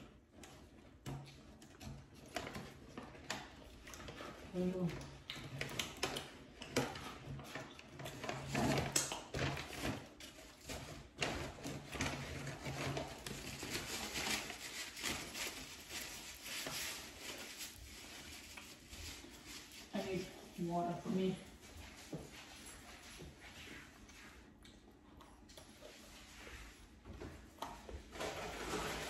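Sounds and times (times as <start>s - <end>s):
food packaging rustling: 7.0s - 20.6s, 27.8s - 29.0s.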